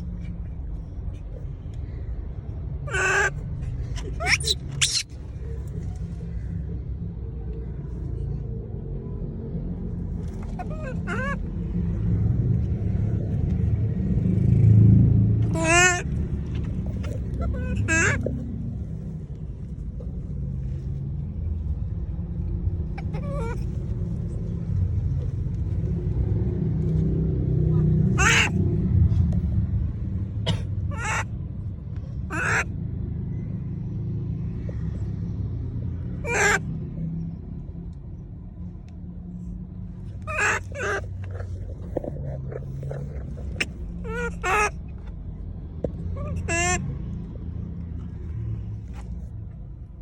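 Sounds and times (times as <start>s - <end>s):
steady low rumble: 0.0s - 50.0s
monkey calling: 2.8s - 5.2s, 10.4s - 11.6s, 15.4s - 16.2s, 16.8s - 18.4s, 22.9s - 24.1s, 27.7s - 28.6s, 30.9s - 31.3s, 32.3s - 32.7s, 36.2s - 36.7s, 40.3s - 41.6s, 42.3s - 44.9s, 46.1s - 46.9s.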